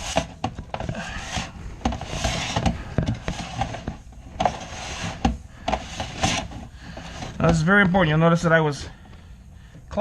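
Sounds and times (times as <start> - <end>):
brush scraping inside vent duct: 0.0 - 8.9.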